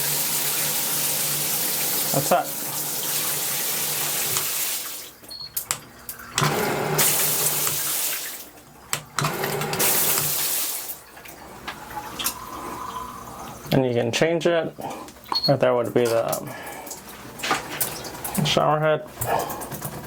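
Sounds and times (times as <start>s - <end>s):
shower spraying water: 0.0s - 5.2s, 6.4s - 8.5s, 9.3s - 13.6s.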